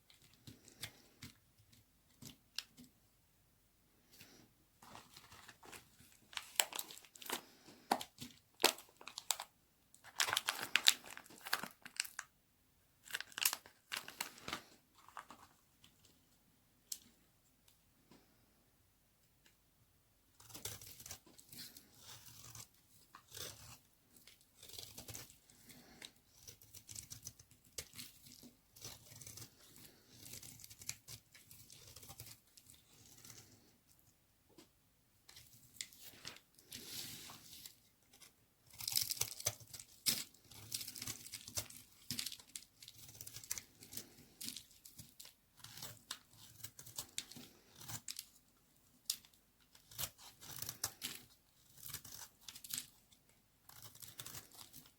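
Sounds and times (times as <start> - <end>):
blade cutting through soap: 20.4 - 33.5.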